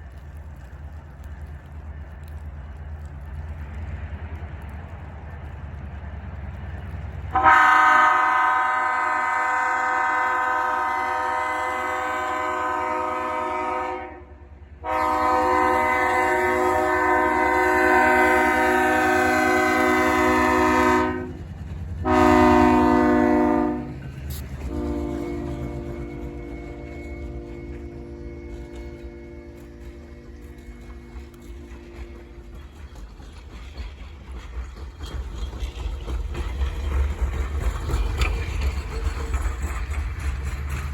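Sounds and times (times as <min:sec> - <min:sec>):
passing train rumble: 0:00.0 - 0:40.9
locomotive air horn blasts: 0:07.3 - 0:21.4, 0:22.0 - 0:30.2.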